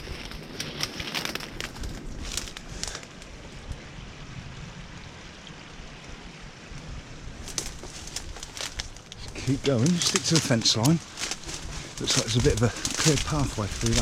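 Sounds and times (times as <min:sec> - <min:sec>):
twigs snapping: 0:00.0 - 0:03.8, 0:07.4 - 0:14.0
rustling through undergrowth: 0:00.0 - 0:03.9, 0:07.2 - 0:14.0.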